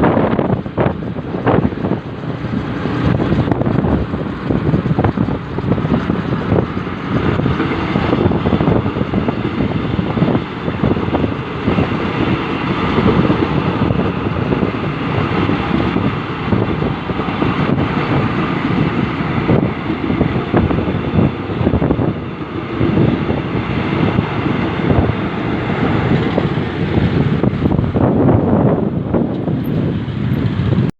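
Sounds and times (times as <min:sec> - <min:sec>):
jet engines rumbling: 0:00.0 - 0:30.9
wind buffeting microphone: 0:00.0 - 0:30.9.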